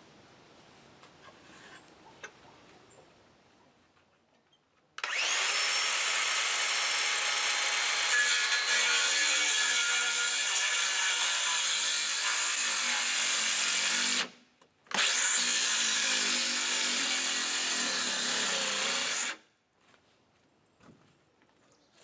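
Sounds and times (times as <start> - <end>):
power drill running under load: 5.0 - 11.4, 14.9 - 19.4.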